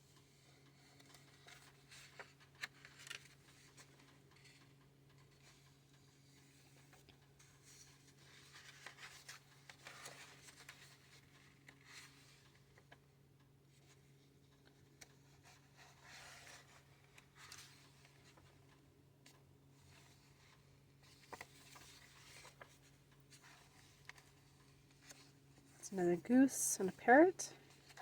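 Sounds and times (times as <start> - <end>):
book pages turning: 0.7 - 3.5
low steady hum: 25.6 - 28.0.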